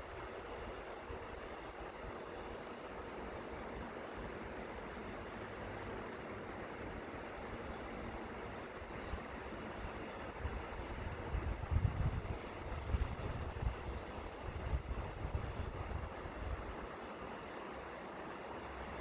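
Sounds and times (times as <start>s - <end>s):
wind gusts on microphone: 10.3s - 16.8s.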